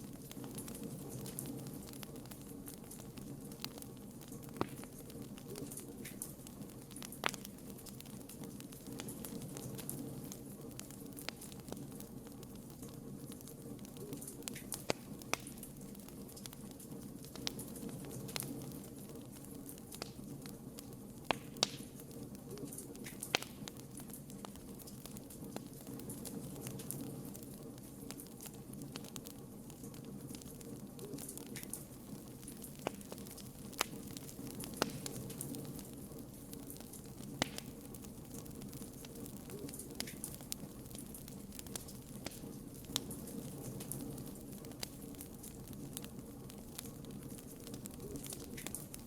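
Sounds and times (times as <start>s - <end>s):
campfire flame rushing: 0.0s - 49.0s
fire crackling: 0.0s - 49.0s
sharp fire pops: 0.0s - 49.0s.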